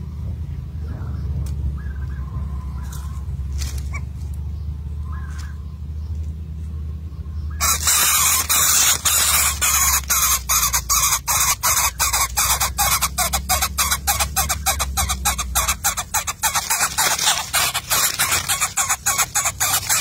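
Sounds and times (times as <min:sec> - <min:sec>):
harsh rasping bird call: 0:07.5 - 0:20.0.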